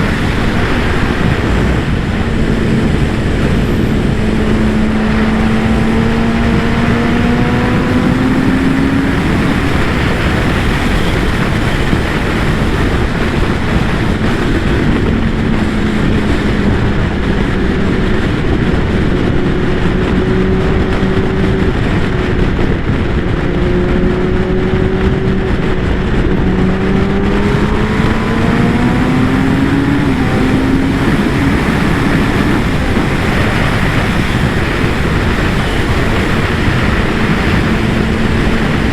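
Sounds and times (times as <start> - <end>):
loud wind noise: 0.0 - 38.9
motorcycle engine: 0.0 - 38.9.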